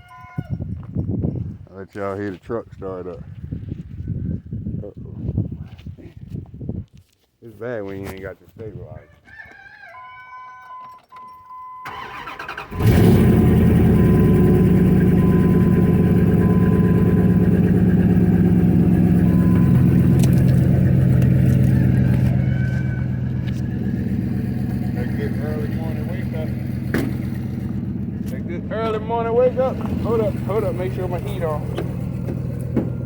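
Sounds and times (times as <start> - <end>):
engine cranking and idling: 11.8 - 33.0
steady beep: 15.1 - 17.7, 18.5 - 20.4.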